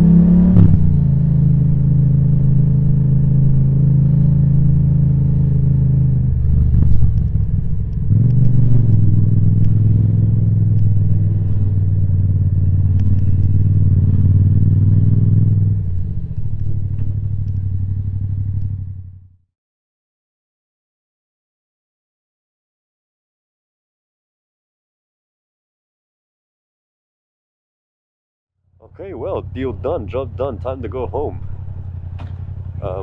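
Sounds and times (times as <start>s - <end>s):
motorcycle engine running: 0.0s - 19.4s, 28.8s - 33.0s.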